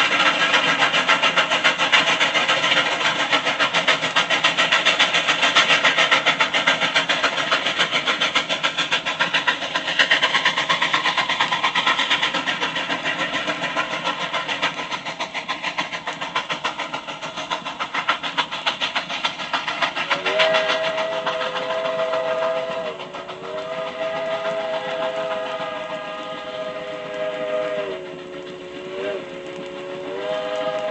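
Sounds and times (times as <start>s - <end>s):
steam locomotive chuffing: 0.0s - 30.9s
chime steam whistle: 20.1s - 30.9s.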